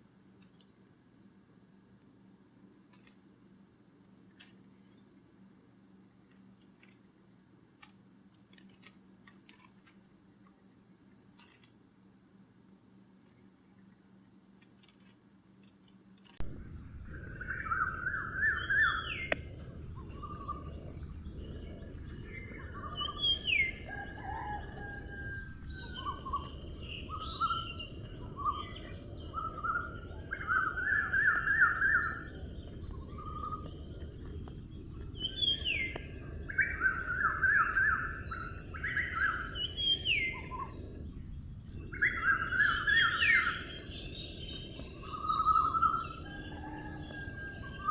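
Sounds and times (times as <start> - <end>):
low outdoor rumble: 16.4 - 47.9
songbird singing buzzy trills: 16.4 - 47.9
steady high hiss: 16.4 - 47.9.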